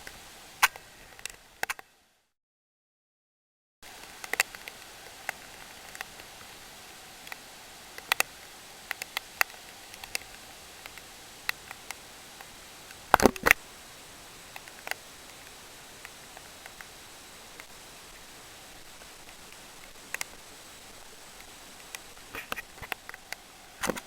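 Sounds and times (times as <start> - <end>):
steady hiss: 0.0 - 2.3, 3.8 - 24.0
sharp taps and clicks: 13.2 - 13.6.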